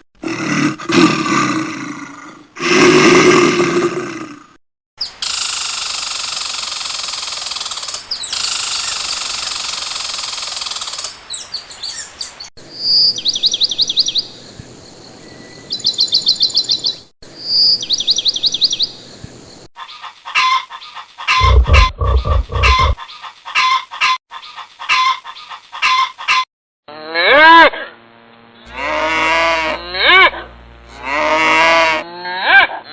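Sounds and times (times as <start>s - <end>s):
short sharp animal calls: 21.3s - 23.0s
steady loud noise: 21.4s - 23.0s.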